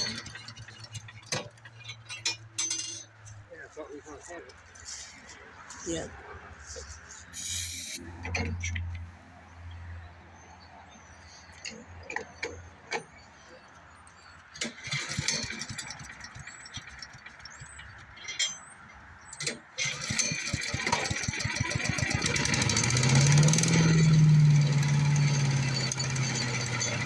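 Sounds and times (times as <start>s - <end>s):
small engine running: 0.0s - 1.4s, 14.6s - 17.8s, 19.4s - 27.0s
small gasoline engine cranking: 0.0s - 2.1s, 7.4s - 8.0s, 14.6s - 18.2s, 19.4s - 27.0s.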